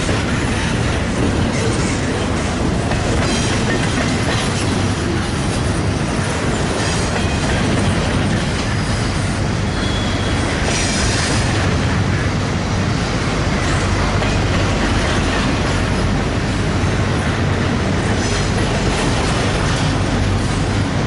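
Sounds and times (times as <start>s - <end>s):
train wheels rumbling on rails: 0.0s - 21.0s
wheel squeals: 8.6s - 11.3s.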